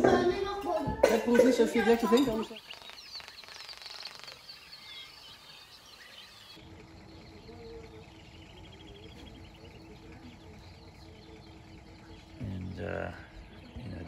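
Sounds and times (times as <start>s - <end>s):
faint birdsong chirps and whistles: 2.2s - 14.0s
rapid bird trill: 2.3s - 14.0s
low steady hum: 4.7s - 14.0s.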